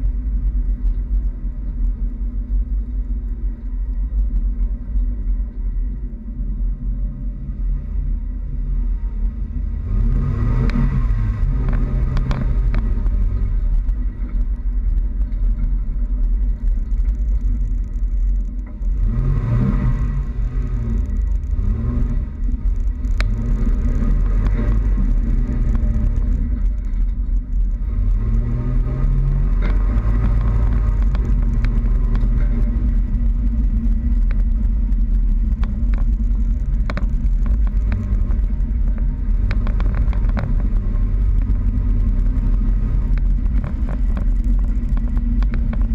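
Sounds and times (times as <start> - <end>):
low rumble of driving: 0.0 - 45.9
pickup truck engine revving: 9.6 - 14.2, 18.8 - 45.9.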